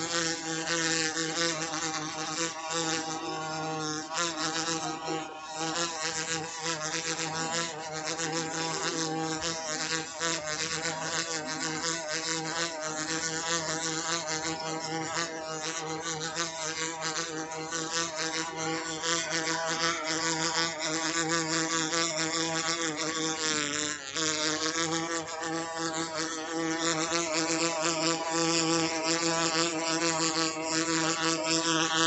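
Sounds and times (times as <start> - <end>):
insect-like buzzing: 0.0 - 32.0.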